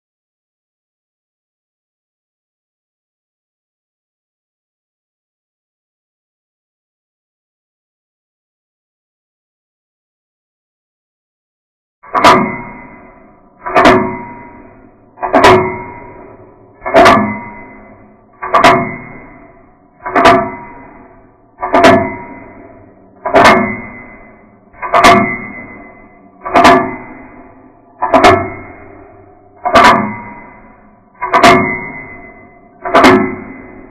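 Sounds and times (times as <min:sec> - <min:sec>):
ringing struck tone: 0:12.1 - 0:33.9.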